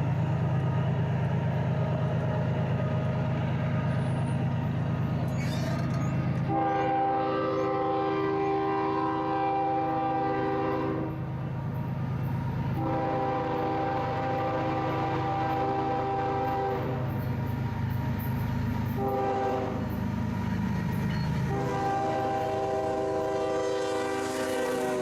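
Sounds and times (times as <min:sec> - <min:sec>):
locomotive engine rumble: 0:00.0 - 0:25.0
locomotive air horn: 0:06.4 - 0:11.3, 0:12.7 - 0:17.2, 0:18.9 - 0:20.0, 0:21.4 - 0:25.0.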